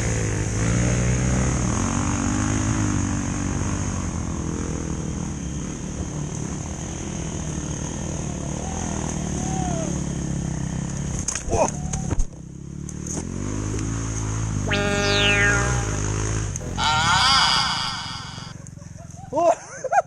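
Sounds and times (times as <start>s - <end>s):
dirt bike engine revving: 14.6s - 18.5s.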